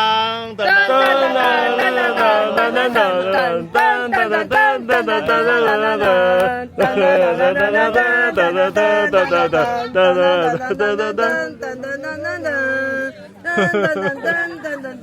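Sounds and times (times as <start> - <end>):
voices singing long held notes: 0.0 - 15.0.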